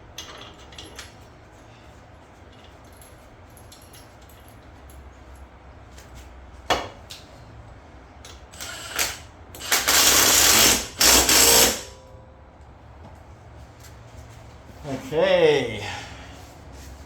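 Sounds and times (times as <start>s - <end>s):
impact wrench bursts: 8.6s - 12.0s.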